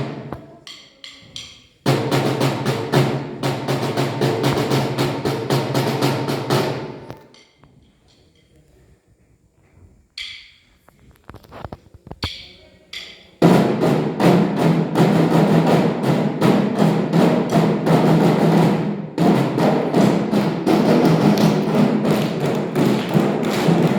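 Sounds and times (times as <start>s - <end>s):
drums playing marching beat: 1.8s - 7.1s, 13.4s - 23.9s.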